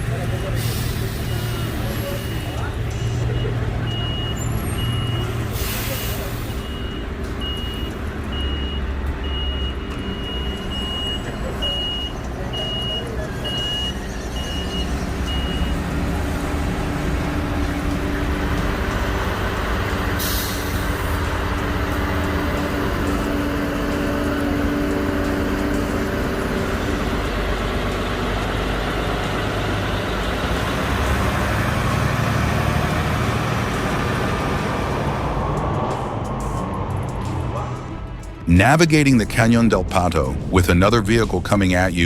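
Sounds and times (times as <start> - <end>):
truck engine running under load: 0.0 - 42.0
air brake hiss: 0.5 - 2.6, 5.4 - 7.0, 20.1 - 21.3
reversing alarm beeping: 0.5 - 30.0.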